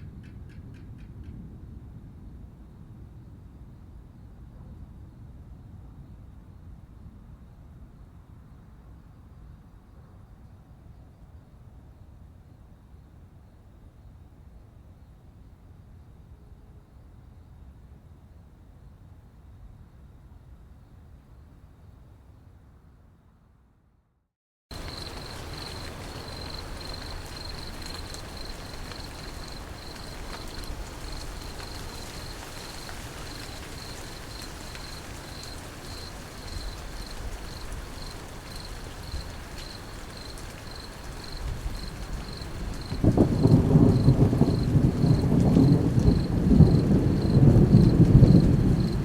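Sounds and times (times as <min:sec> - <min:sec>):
low rumble of thunder: 0:24.7 - 0:49.0
steady rain: 0:24.7 - 0:49.0.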